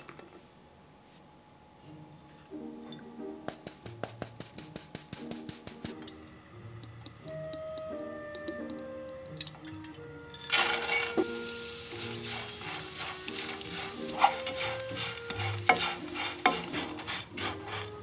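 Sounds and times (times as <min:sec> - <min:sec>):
fish sizzling in hot oil: 0:10.5 - 0:18.0
wooden spoon scraping pan: 0:10.5 - 0:18.0.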